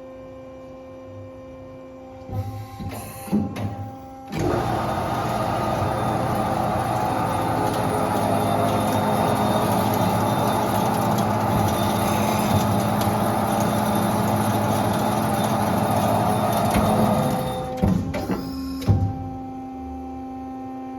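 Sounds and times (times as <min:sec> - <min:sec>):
band saw running: 0:04.4 - 0:18.0.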